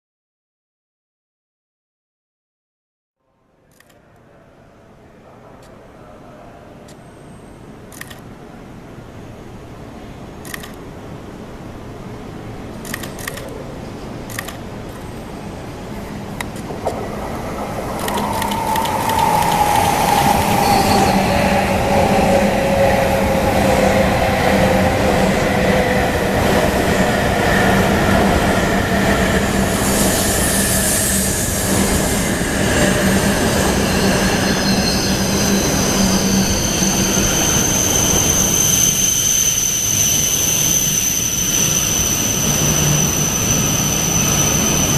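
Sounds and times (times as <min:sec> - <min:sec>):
train rolling noise: 0:05.2 - 0:44.9
sharp clicks: 0:18.0 - 0:19.9.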